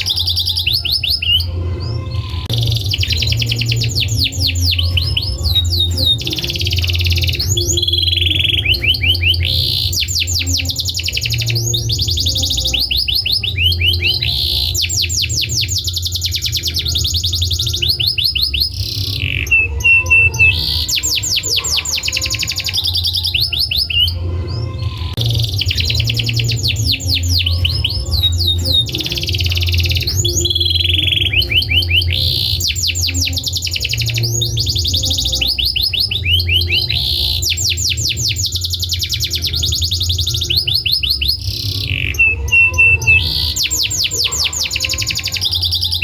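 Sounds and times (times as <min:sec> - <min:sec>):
canary singing trills: 0:00.0 - 0:46.0.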